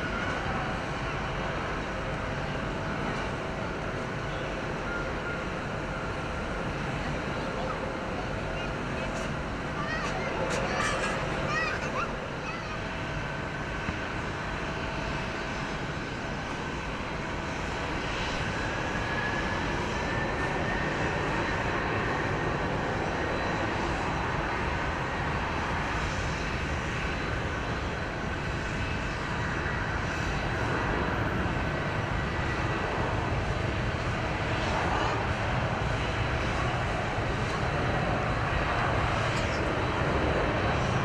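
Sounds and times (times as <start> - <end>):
jet engines roaring: 0.0 - 41.0.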